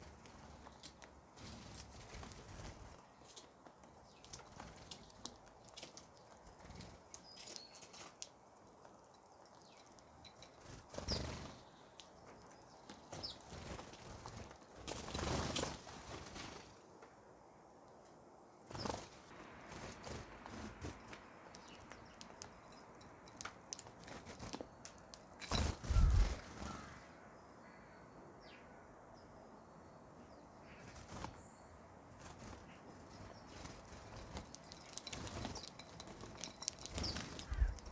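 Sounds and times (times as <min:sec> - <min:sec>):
small birds chirping: 0:00.0 - 0:15.7, 0:18.7 - 0:37.9
rustling: 0:32.1 - 0:37.9.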